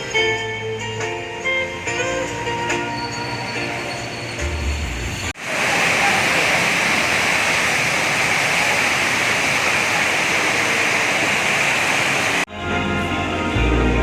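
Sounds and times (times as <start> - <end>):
spraying hiss: 5.4 - 12.5.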